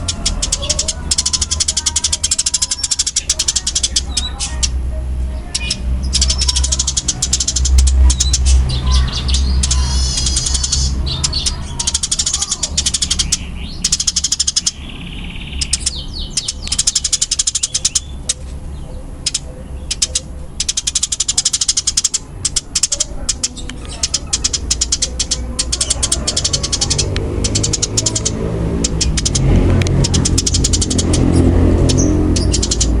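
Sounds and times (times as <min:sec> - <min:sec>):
sparrows chirping: 0:00.0 - 0:33.0
steady low hum: 0:00.0 - 0:33.0.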